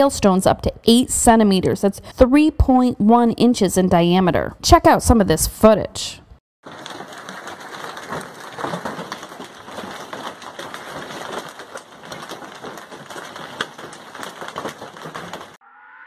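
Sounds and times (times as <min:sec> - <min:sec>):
hail clattering on surfaces: 0:06.6 - 0:15.6.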